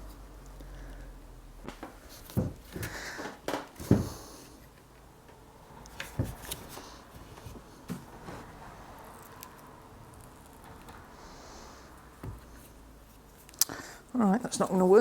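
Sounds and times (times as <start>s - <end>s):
knocks and taps on wood: 1.7s - 4.2s.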